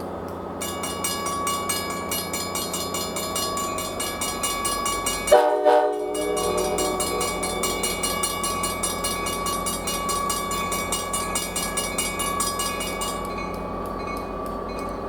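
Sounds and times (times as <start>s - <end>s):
diesel locomotive engine running: 0.0s - 15.0s.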